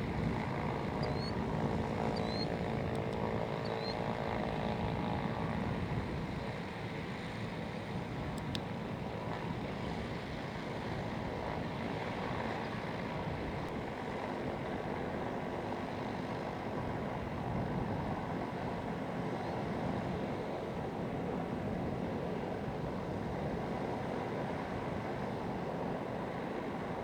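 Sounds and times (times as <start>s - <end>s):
aircraft engine rumbling: 0.0s - 10.7s.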